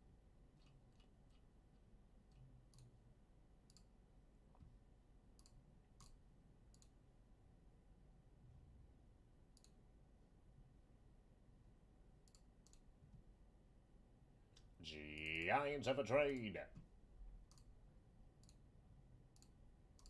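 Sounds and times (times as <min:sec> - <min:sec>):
faint sharp clicks: 0:09.6 - 0:09.8.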